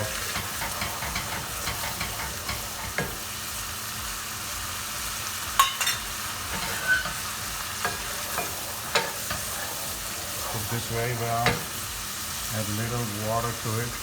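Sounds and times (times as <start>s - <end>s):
utensil scraping a pan: 0.0s - 3.3s, 5.6s - 12.2s
sauce sizzling in a hot pan: 0.0s - 14.0s.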